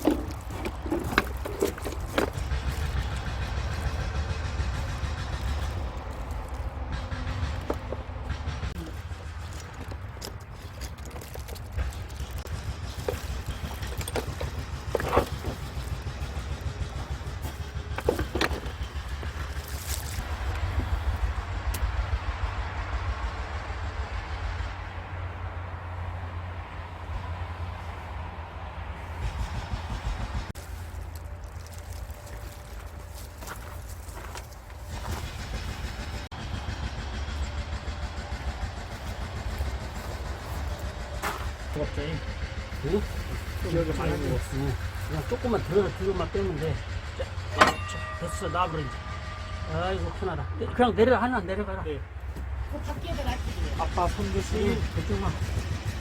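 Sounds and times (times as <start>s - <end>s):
steady low rumble: 0.0s - 56.0s
metallic clinks and knocks: 8.9s - 20.2s, 47.5s - 48.4s.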